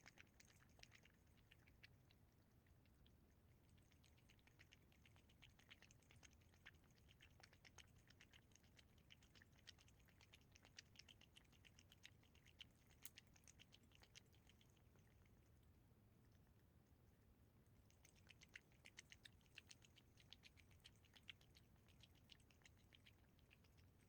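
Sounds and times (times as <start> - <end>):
cat eating with wet clicks: 0.0 - 24.0.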